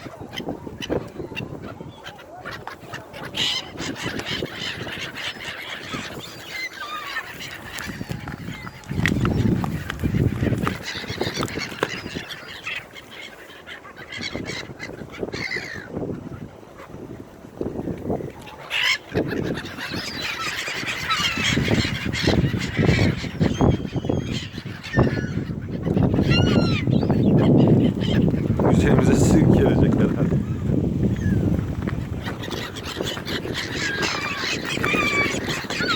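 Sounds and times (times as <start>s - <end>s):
gulls calling: 0.0s - 35.9s.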